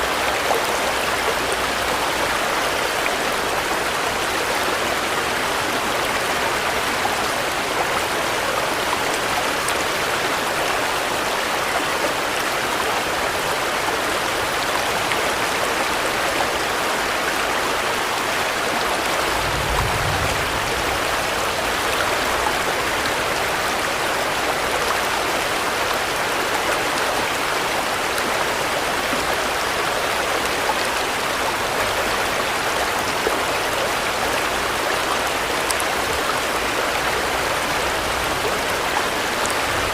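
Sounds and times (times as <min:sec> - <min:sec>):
steady rain falling: 0:00.0 - 0:39.9
low rumble: 0:19.3 - 0:21.3.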